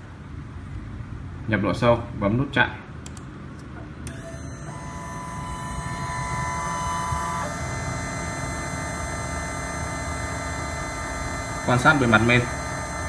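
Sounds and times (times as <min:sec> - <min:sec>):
machine motors whining: 0:04.0 - 0:13.0.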